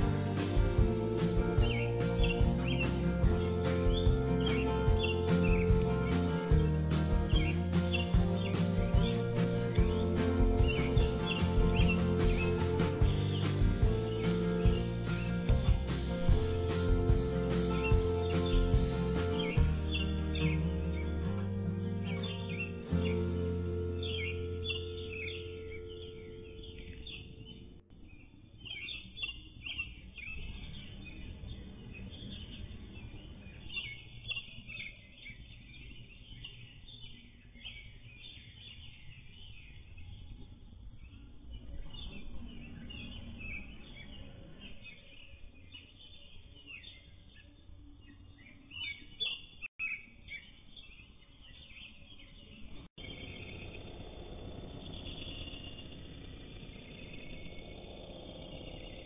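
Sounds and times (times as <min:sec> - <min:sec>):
low background rumble: 0:00.0 - 0:27.9, 0:53.0 - 0:59.0
small birds chirping and twittering: 0:00.0 - 0:59.0.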